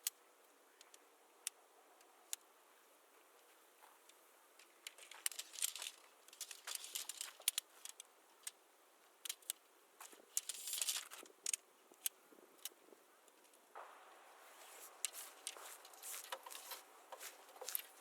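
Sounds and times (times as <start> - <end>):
rustling: 3.3 - 8.5, 9.3 - 12.7, 13.3 - 18.0
small metal objects clinking: 4.9 - 7.6, 10.3 - 11.2.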